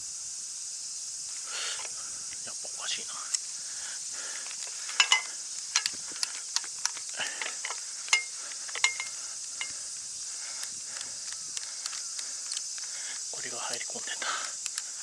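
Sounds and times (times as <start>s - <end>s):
high insect drone: 0.0s - 15.0s
metallic clinks of equipment: 4.5s - 9.8s.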